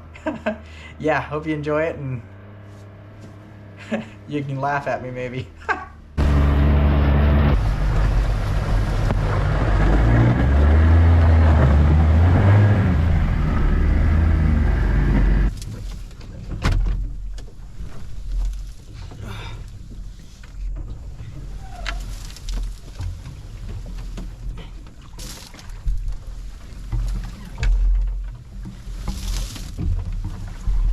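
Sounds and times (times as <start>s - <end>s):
outdoor noise: 0.0s - 30.9s
boat motor running: 5.5s - 16.4s.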